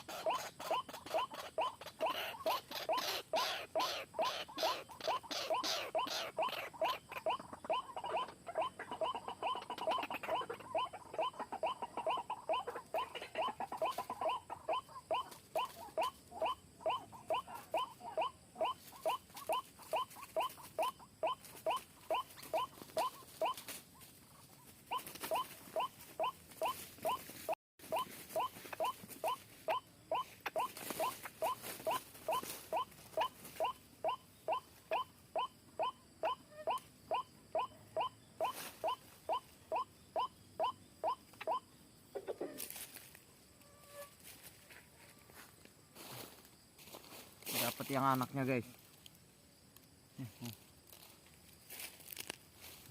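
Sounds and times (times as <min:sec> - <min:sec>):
waterhen calling sharp notes: 0:00.0 - 0:23.7.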